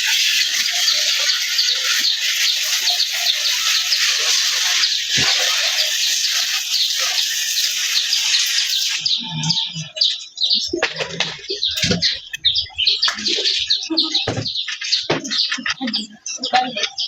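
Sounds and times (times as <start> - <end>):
water spraying: 0.0 - 9.3
small birds chirping: 0.0 - 17.0.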